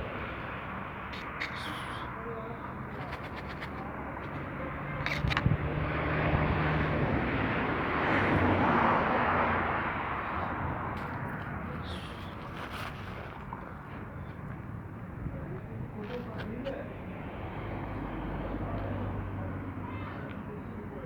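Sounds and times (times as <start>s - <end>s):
motor vehicle passing by: 1.6s - 13.4s.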